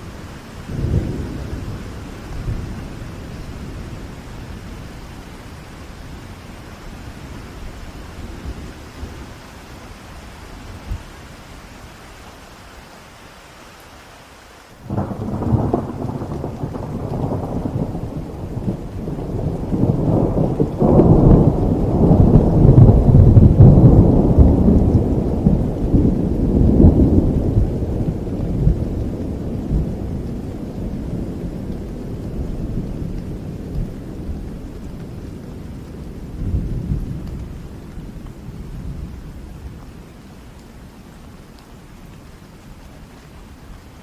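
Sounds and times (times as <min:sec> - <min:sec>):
thunder rumbling: 0:00.0 - 0:10.0, 0:14.8 - 0:41.2
steady rain: 0:00.0 - 0:44.0.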